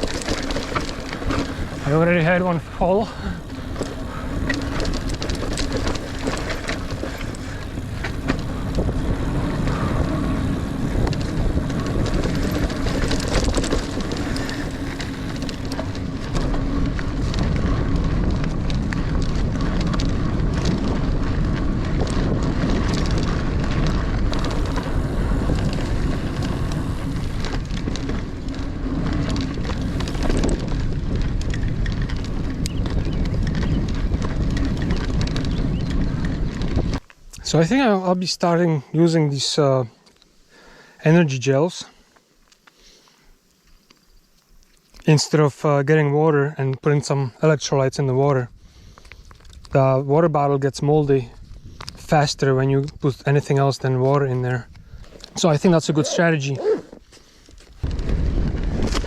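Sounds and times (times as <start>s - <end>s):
wind on microphone: 0.0s - 37.0s, 51.2s - 53.6s, 57.8s - 59.0s
bike rattles and clicks: 0.0s - 41.0s, 41.6s - 59.0s
bike tyres rolling on dirt trail: 0.0s - 59.0s.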